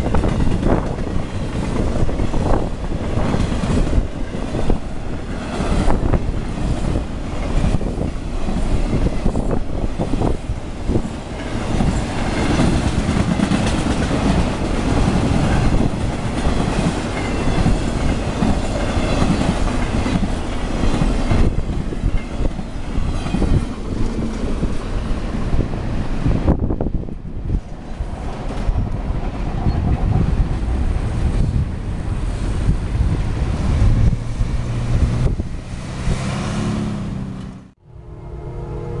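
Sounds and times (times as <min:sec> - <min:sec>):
freight train rumbling past: 0:00.0 - 0:39.0
wheels clicking over rail joints: 0:10.9 - 0:25.7.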